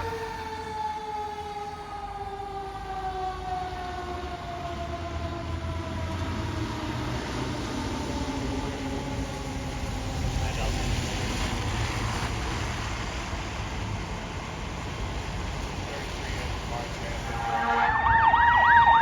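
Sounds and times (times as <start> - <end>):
truck engine rumble: 0.0 - 19.0
mechanical siren winding down: 17.3 - 19.0.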